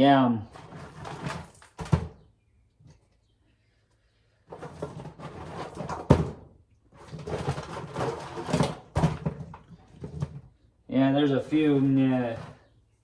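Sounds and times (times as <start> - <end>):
dry corn rustling and rattling: 0.5 - 2.2, 4.5 - 6.4, 7.0 - 10.5, 11.1 - 12.7.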